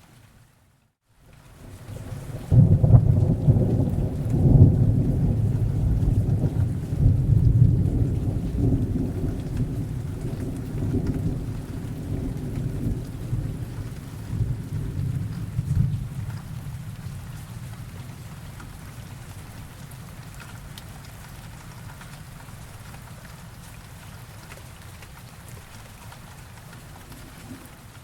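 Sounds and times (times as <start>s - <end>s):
steady rain: 0.0s - 28.0s
thunder rolling: 2.4s - 17.4s.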